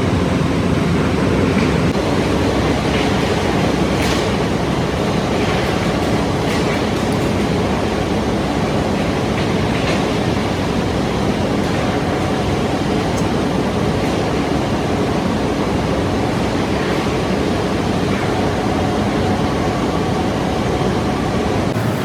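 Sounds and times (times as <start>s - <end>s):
industrial machinery rushing din: 21.6s - 22.0s.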